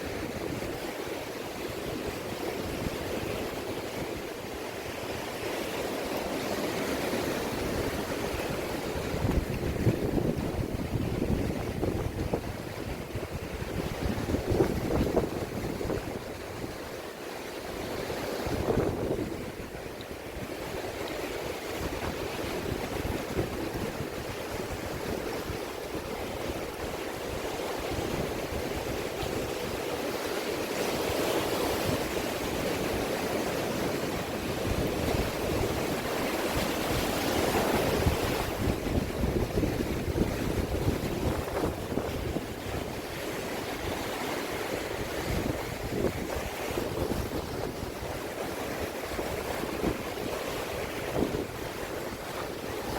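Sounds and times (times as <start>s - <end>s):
sea waves washing ashore: 0.0s - 52.9s
wind buffeting microphone: 6.6s - 16.9s, 17.8s - 52.9s.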